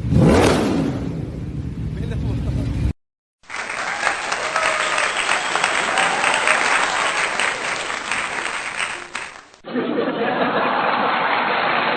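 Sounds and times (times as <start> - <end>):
crowd applauding: 3.4 - 9.7, 10.3 - 11.9.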